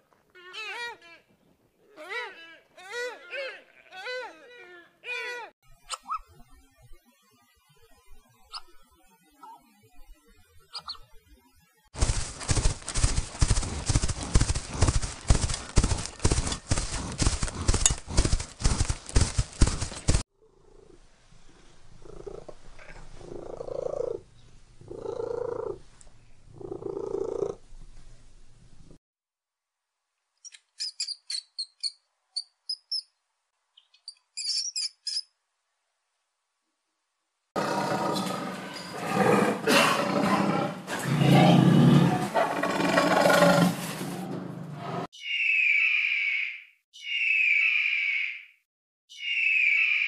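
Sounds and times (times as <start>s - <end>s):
horse hooves clip-clop: 12.0s - 20.2s
lion roaring: 37.6s - 43.8s
bears growling: 37.6s - 44.0s.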